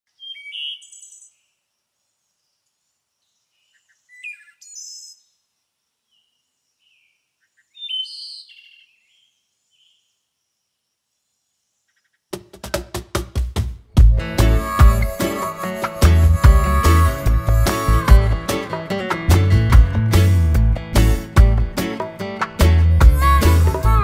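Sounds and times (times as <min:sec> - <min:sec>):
bird chirping and trilling: 0:00.2 - 0:01.5, 0:03.4 - 0:05.4, 0:06.1 - 0:10.1.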